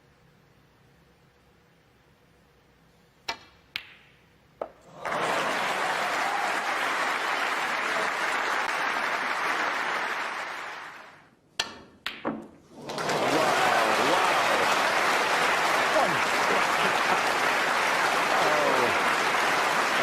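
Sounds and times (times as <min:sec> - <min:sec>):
audience applause: 0:04.8 - 0:11.2, 0:12.7 - 0:20.0
snooker balls clicking: 0:11.6 - 0:12.6.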